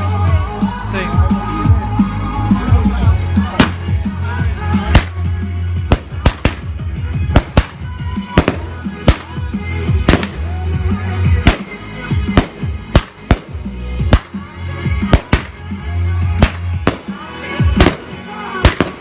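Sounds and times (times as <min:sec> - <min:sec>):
music with heavy bass: 0:00.0 - 0:19.0
fireworks bangs: 0:03.4 - 0:04.1, 0:04.8 - 0:10.6, 0:11.3 - 0:15.7, 0:16.4 - 0:19.0.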